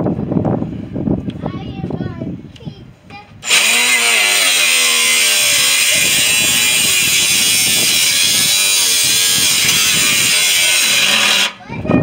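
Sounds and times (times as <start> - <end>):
power tool cutting metal: 3.4 - 11.6
faint voices: 4.3 - 7.4.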